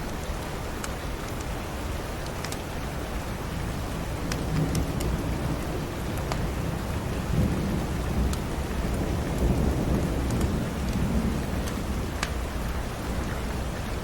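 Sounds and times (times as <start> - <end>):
steady rain: 0.0 - 14.0
wood fire crackling: 8.3 - 12.4.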